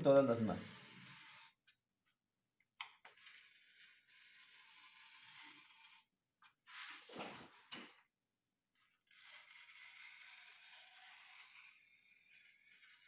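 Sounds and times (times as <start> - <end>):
blade scraping through sheet: 6.7 - 7.8.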